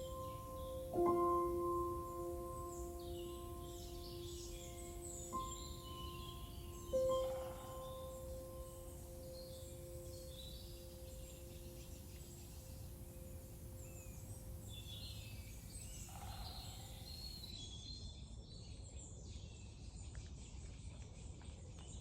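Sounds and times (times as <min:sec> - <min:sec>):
two-note ringing tone: 0:00.0 - 0:14.6
songbirds chirping and trilling: 0:00.0 - 0:22.0.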